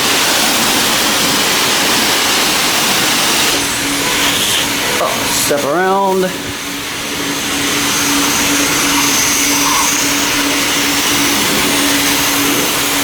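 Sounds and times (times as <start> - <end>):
pressure washer spraying hiss: 0.0 - 13.0
low hum: 3.4 - 13.0.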